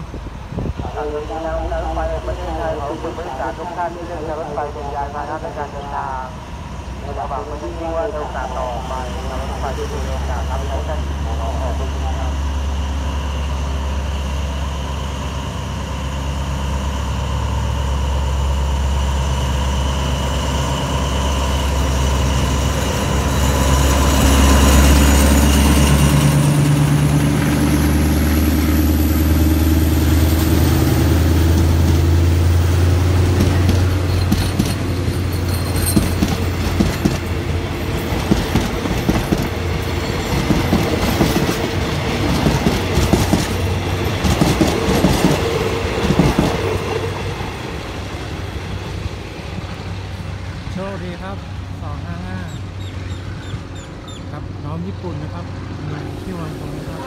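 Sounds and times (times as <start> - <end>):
diesel locomotive engine hum: 0.0 - 57.0
train wheels clicking over rail joints: 31.5 - 46.9.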